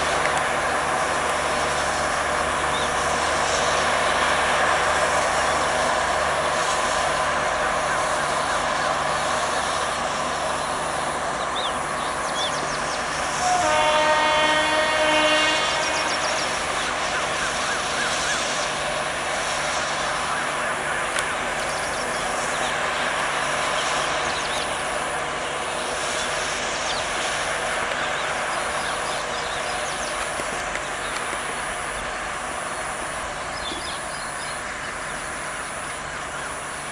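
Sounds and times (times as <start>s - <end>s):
train wheels on rail: 0.0s - 36.9s
train horn blast: 13.1s - 18.2s.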